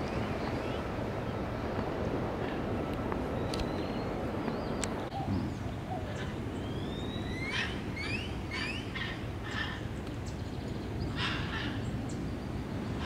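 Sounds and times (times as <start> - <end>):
birds whistling: 3.4 - 11.9.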